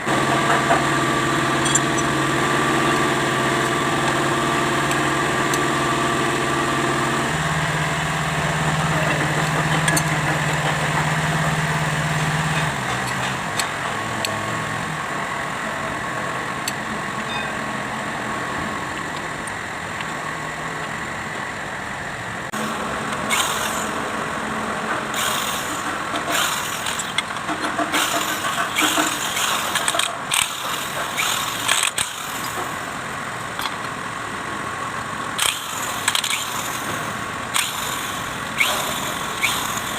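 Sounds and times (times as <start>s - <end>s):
diesel engine running: 0.0s - 39.9s
short noisy bursts: 22.6s - 24.3s, 25.0s - 32.9s, 35.4s - 39.9s.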